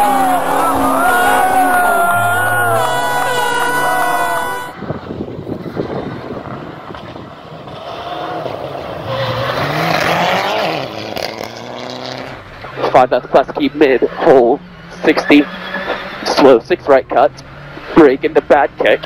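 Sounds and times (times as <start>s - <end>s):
steady pitched tones: 0.0s - 4.8s
rally car engine at full throttle: 0.0s - 19.0s
road and tyre noise: 0.0s - 19.0s.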